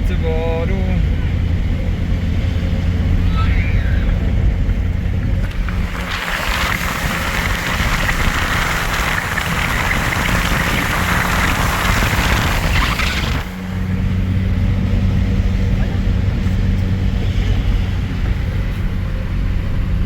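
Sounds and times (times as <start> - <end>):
low engine hum: 0.0 - 20.0
rain hissing: 5.3 - 13.9.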